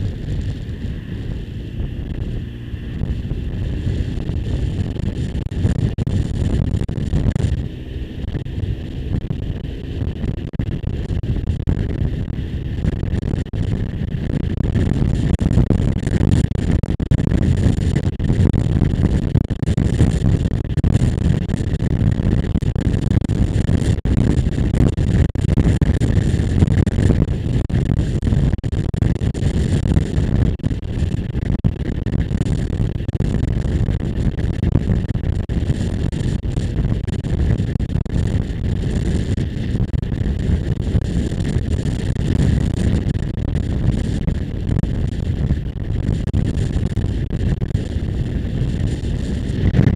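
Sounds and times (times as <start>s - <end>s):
motorcycle engine and road noise: 0.0s - 49.9s
wind rushing over microphone: 0.0s - 49.9s.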